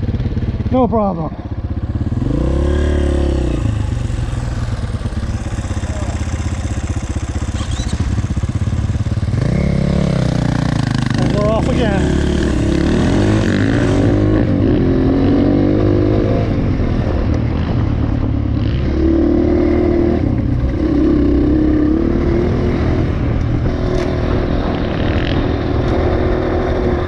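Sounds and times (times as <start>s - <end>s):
dirt bike engine revving: 1.8s - 16.6s.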